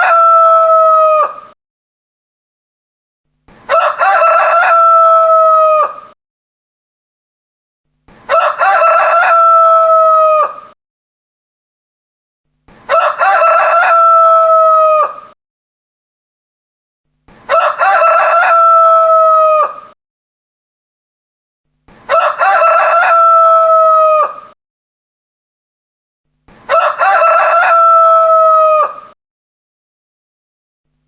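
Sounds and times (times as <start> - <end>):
rooster crowing: 0.0 - 1.5, 3.7 - 6.2, 8.3 - 10.8, 12.9 - 15.4, 17.5 - 20.0, 22.1 - 24.6, 26.7 - 29.2.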